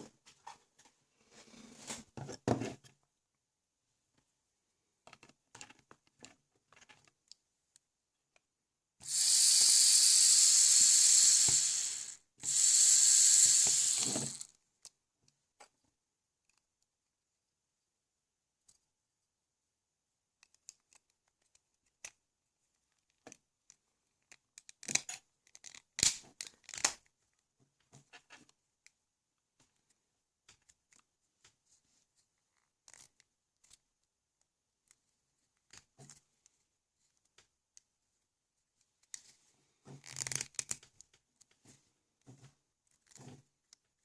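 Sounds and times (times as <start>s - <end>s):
plastic parts clicking and scraping: 9.0s - 14.9s, 20.4s - 22.2s, 22.9s - 27.1s, 32.5s - 33.9s, 39.9s - 44.0s.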